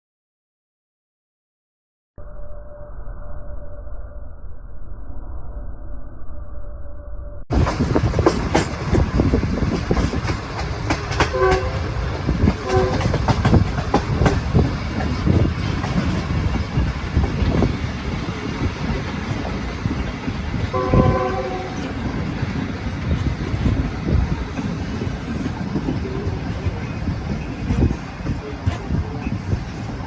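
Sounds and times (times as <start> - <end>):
wheels clattering over rail joints: 7.5 - 20.6
train rumbling: 7.5 - 30.0
train horn toots: 11.1 - 12.0, 12.6 - 13.4, 20.7 - 21.9.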